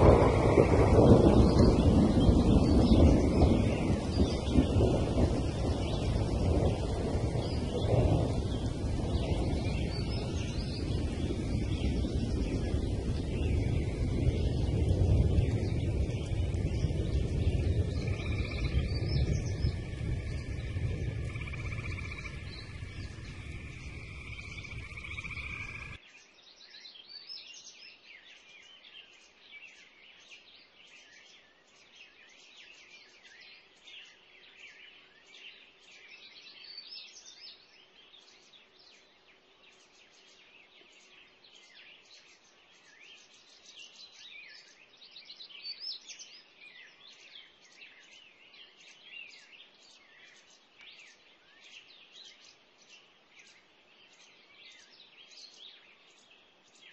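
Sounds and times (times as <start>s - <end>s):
chorus of animals chirping: 0.0s - 26.0s.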